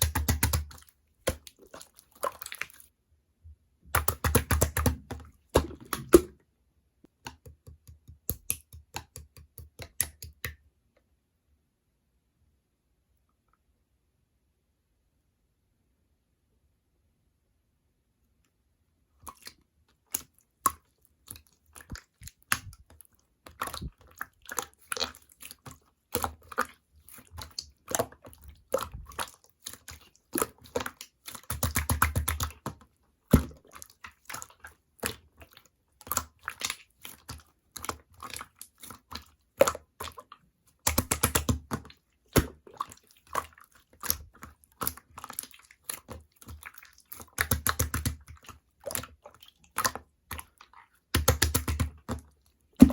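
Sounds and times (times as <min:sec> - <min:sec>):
rapid crackling of slime: 0:00.0 - 0:02.9, 0:19.3 - 0:52.9
slime squishing with sticky clicks: 0:00.0 - 0:02.9, 0:03.8 - 0:10.9, 0:19.2 - 0:52.9.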